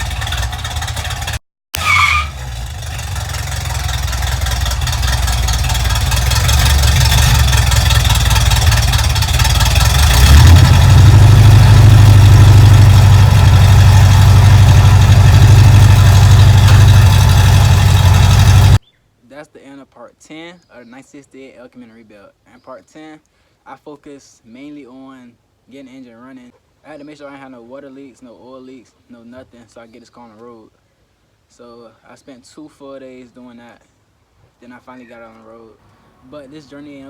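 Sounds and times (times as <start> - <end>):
car engine droning: 0.0 - 18.8
road and wind noise: 0.0 - 18.8
brief high squeal: 1.8 - 2.4.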